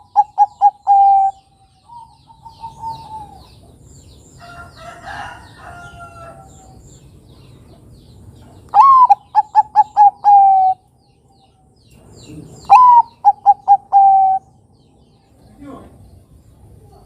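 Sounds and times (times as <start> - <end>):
dove cooing: 0.0 - 3.8, 8.8 - 10.8, 12.3 - 14.6.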